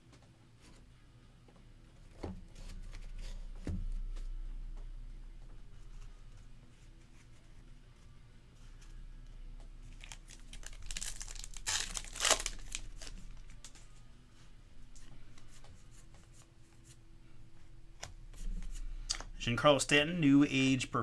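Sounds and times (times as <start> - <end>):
wrapper tearing and crinkling: 9.8 - 13.8.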